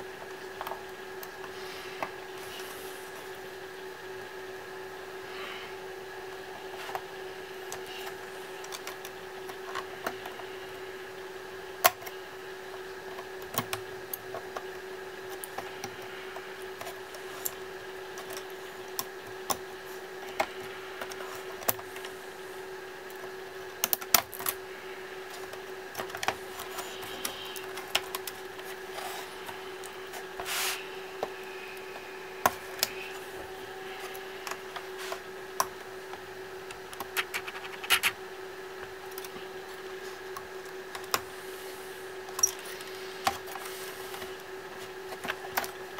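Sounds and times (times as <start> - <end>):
steady background hum: 0.0 - 45.9
laptop parts and tools clicking: 23.1 - 24.6, 25.3 - 30.0, 36.7 - 38.2.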